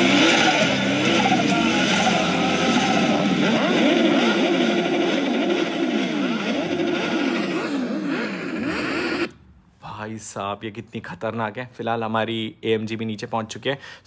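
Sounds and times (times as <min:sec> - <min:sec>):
car engine revving: 0:00.0 - 0:09.4
gliding tones: 0:00.0 - 0:09.4.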